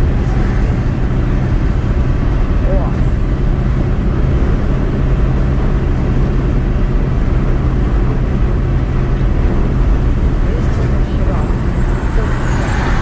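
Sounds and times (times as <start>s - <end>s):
car engine drone: 0.0s - 13.0s.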